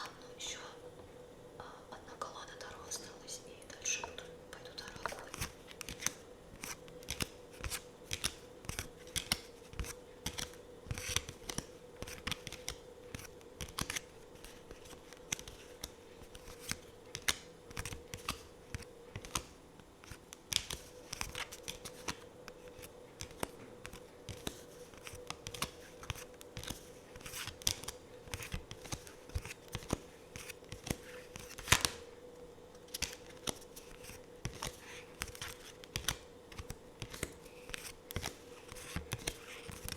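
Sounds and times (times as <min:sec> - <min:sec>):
faint steady hum: 0:00.0 - 0:39.9
cards clicking and tapping: 0:04.9 - 0:32.1, 0:32.8 - 0:39.9
card snap: 0:23.2 - 0:32.0, 0:32.8 - 0:39.9.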